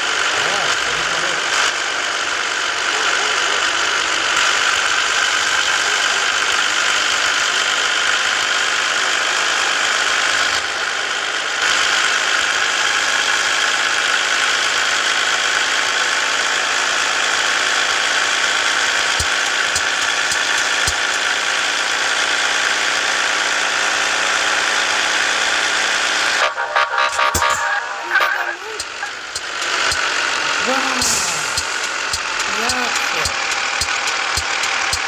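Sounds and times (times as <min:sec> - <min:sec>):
truck diesel engine running: 0:16.8 - 0:24.6, 0:28.8 - 0:32.5.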